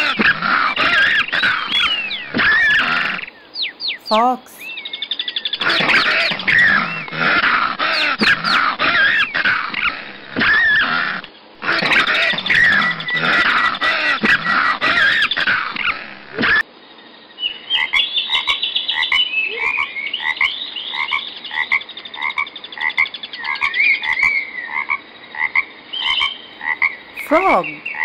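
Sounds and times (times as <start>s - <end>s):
fox calls: 0.0s - 3.4s, 5.6s - 16.6s
high trilling frog calls: 0.0s - 16.6s, 17.4s - 28.0s
frogs croaking in chorus: 0.0s - 28.0s.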